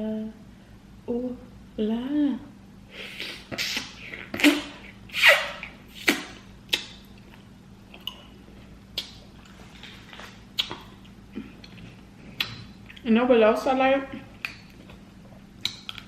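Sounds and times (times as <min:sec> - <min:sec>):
wet eating smacks and slurps: 0:08.9 - 0:13.1.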